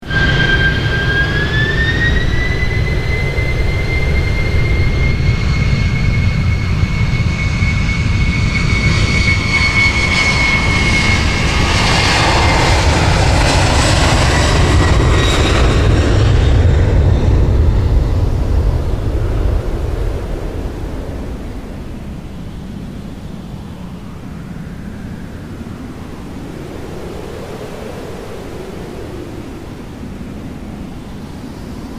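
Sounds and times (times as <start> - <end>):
jet engine whine: 0.0 - 31.9
broad rushing noise: 9.3 - 31.9
low rumble: 10.2 - 25.2.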